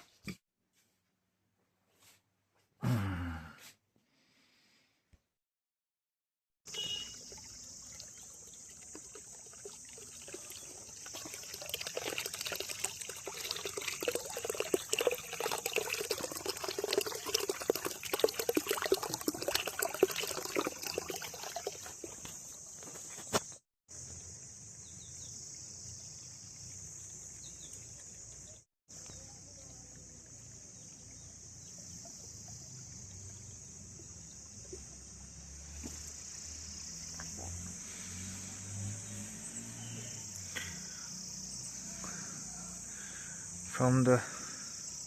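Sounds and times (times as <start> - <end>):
water trickling and splashing: 6.7 - 23.3, 23.9 - 42.3
high-pitched insect drone: 35.5 - 45.0.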